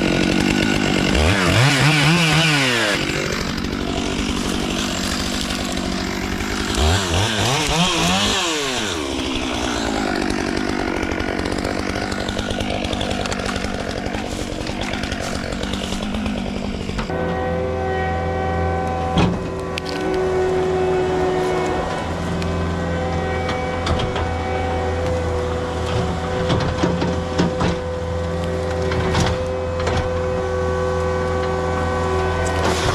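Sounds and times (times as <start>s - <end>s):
chainsaw cutting wood: 0.0s - 17.2s, 18.9s - 32.9s
steady engine drone: 0.7s - 32.9s.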